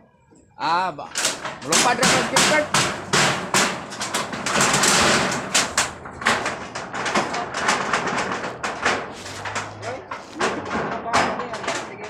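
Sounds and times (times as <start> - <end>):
knocks and clatter: 1.1 - 12.0
scraping noise: 5.6 - 10.9.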